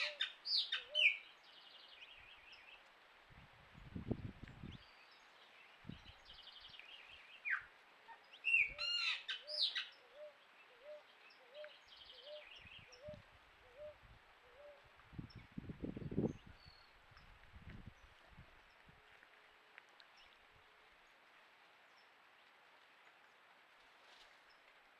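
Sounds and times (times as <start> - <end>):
sweeping whistled bird calls: 0.0 - 2.8, 4.7 - 15.4.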